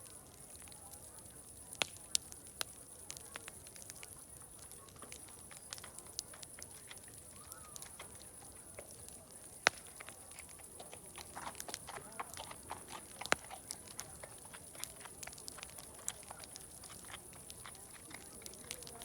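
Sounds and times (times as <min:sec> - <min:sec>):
wood fire crackling: 0:00.0 - 0:19.0
faint animal sounds: 0:03.1 - 0:08.9
loud sharp fire pops: 0:09.5 - 0:10.0.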